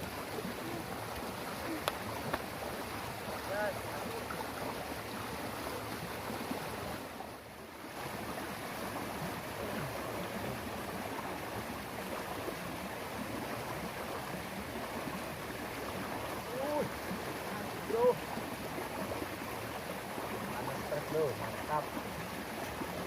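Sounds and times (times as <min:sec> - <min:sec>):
stream water flowing: 0:00.0 - 0:23.0.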